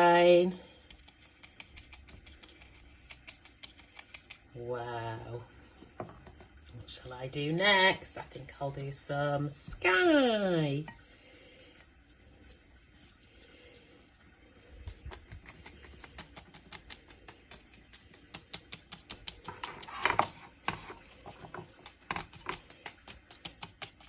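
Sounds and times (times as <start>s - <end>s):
brush dabbing paint on paper: 0.8s - 4.5s, 11.7s - 24.0s.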